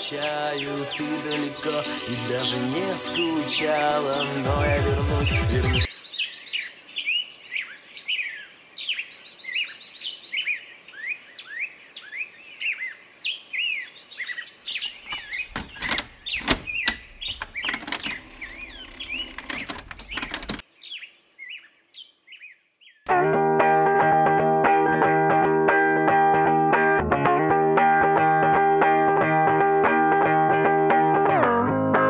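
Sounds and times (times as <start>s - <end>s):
small birds chirping: 0.0s - 23.1s
cassette recorder clicking: 15.1s - 20.6s.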